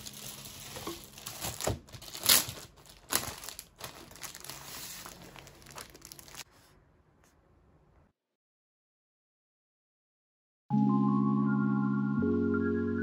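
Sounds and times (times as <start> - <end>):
crinkly material rustling and crackling: 0.0 - 6.7.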